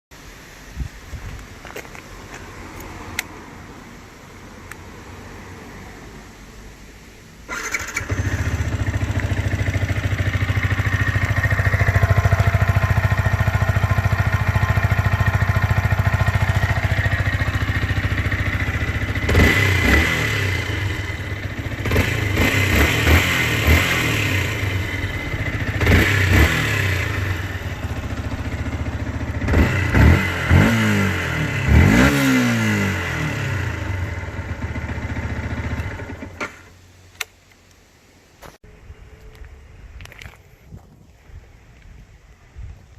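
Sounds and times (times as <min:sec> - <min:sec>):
motorcycle engine revving: 0:07.5 - 0:36.7
motorcycle engine idling: 0:07.6 - 0:31.8, 0:33.3 - 0:36.4.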